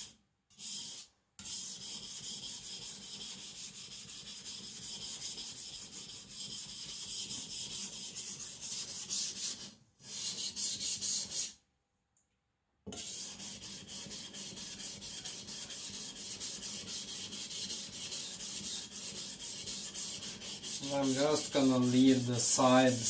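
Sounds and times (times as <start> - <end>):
knife scraping on whetstone: 13.0 - 23.0.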